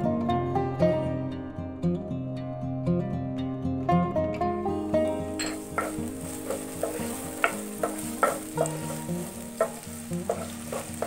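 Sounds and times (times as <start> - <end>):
onion sizzling in hot oil: 5.2 - 11.0
wooden spatula scraping pan: 5.4 - 11.0.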